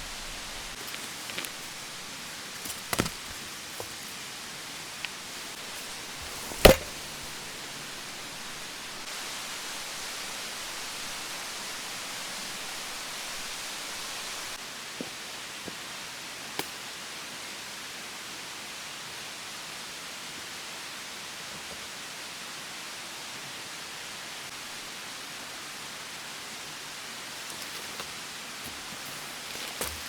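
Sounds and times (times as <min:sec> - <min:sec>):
steady rushing hiss: 0:00.0 - 0:14.6.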